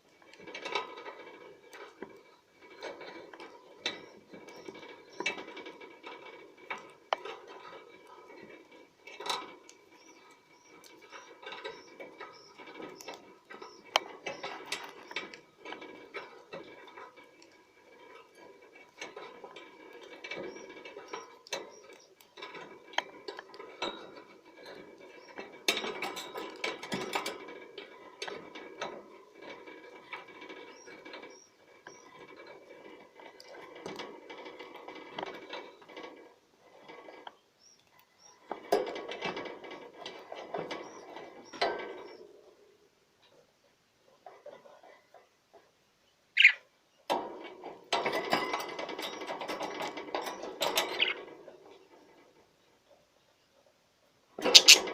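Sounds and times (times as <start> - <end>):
budgerigar warbling: 46.4 - 46.6, 54.5 - 54.8.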